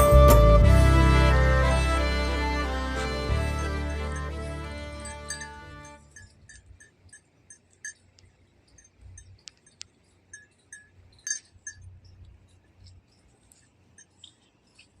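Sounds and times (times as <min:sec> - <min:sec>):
intermittent low rumble: 0:00.0 - 0:15.0
light clinks and ticks: 0:05.0 - 0:15.0.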